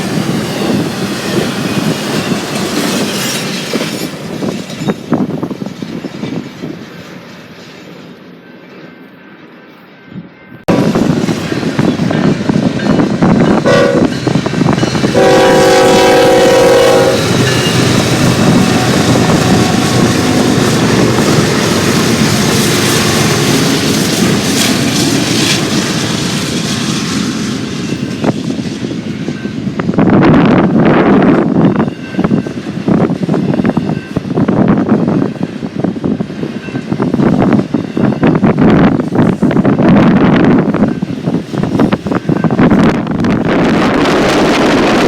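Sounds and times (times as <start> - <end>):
train rumble and wheel noise: 0.0 - 45.0
locomotive horn: 13.6 - 14.2, 15.1 - 21.5.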